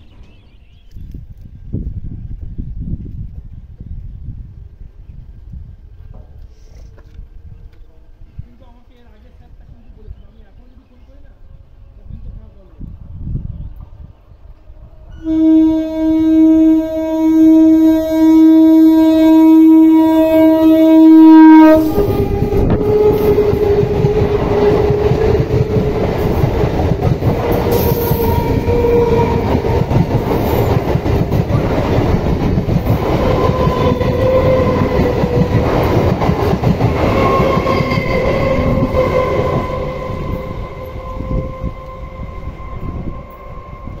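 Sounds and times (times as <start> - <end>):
train rumbling past: 11.2 - 44.0
train horn: 14.8 - 26.7, 27.3 - 30.8, 33.0 - 36.0, 37.1 - 44.0.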